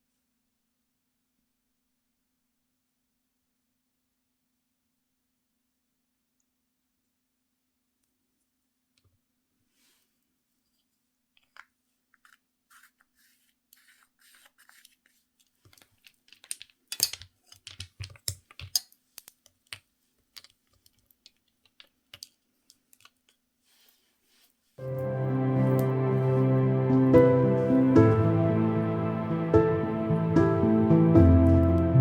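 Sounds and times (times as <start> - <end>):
small objects clicking and tapping: 13.8 - 23.4.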